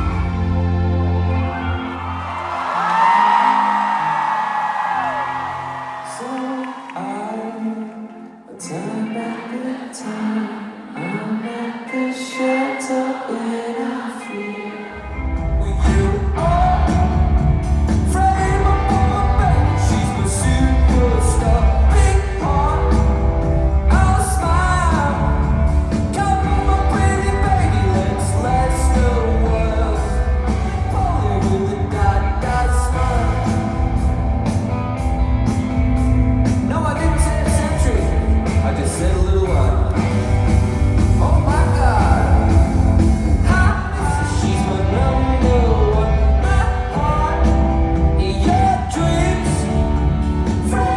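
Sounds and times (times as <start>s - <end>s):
heavy bass: 0.0s - 2.4s, 15.2s - 50.9s
live rock band: 0.0s - 6.9s, 14.3s - 50.9s
person singing: 2.6s - 34.1s, 36.6s - 50.9s
steady drum beat: 15.6s - 50.9s.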